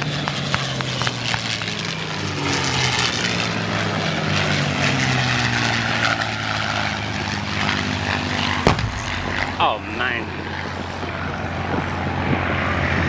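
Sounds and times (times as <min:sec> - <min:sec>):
propeller aircraft engine drone: 0:00.0 - 0:08.5
faint sharp cracks: 0:08.7 - 0:10.1.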